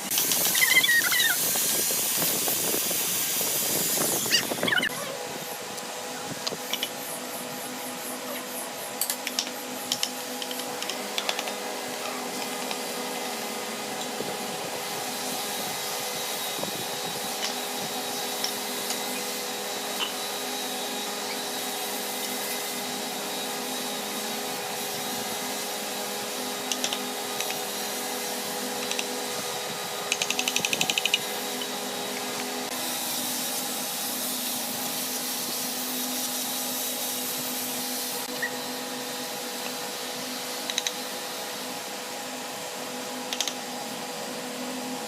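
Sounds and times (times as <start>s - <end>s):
power tool humming: 0.0s - 45.0s.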